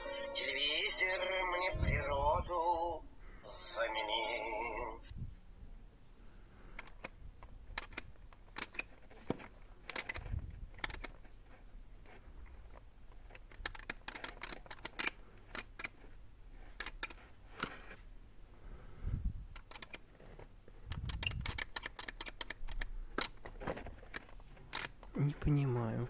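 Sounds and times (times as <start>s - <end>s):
plastic toy clicks and taps: 6.8s - 11.3s, 13.2s - 17.8s, 20.9s - 23.4s.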